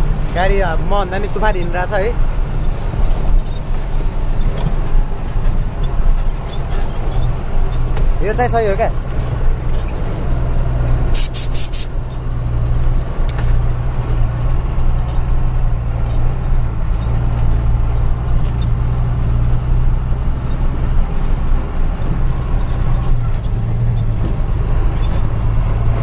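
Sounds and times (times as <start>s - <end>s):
vehicle engine droning: 0.0s - 26.0s
short high-pitched bursts: 11.2s - 11.9s.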